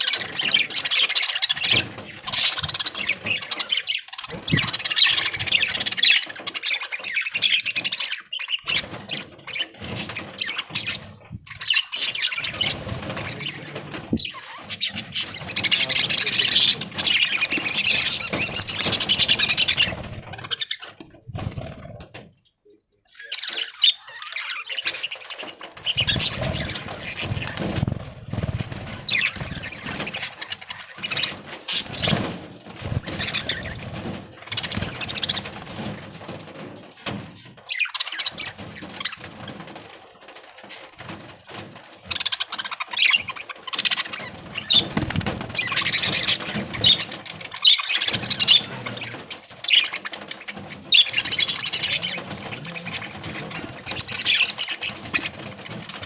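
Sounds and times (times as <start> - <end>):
budgerigars chattering: 0.0 - 21.0, 23.2 - 32.3, 42.1 - 55.4
wings fluttering: 0.0 - 22.4, 23.1 - 56.0.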